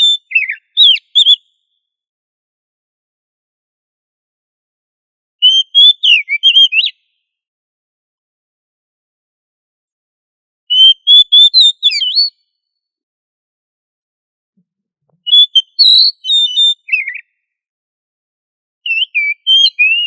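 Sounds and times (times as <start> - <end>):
bird whistling song: 0.0 - 1.7, 5.4 - 7.2, 10.7 - 12.5, 15.2 - 17.4, 18.9 - 20.0.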